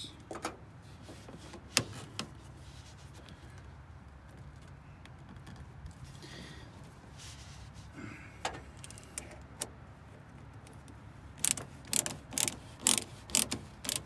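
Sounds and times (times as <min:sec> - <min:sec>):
ratchet wrench strokes: 0:11.4 - 0:14.0.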